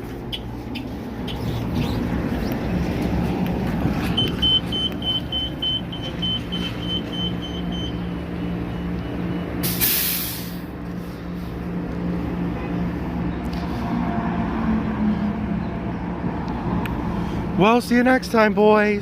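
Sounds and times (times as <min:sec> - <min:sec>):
bus engine idling: 0:00.0 - 0:14.2
rapid electronic beeping: 0:04.2 - 0:08.0
air hiss burst: 0:09.6 - 0:10.7.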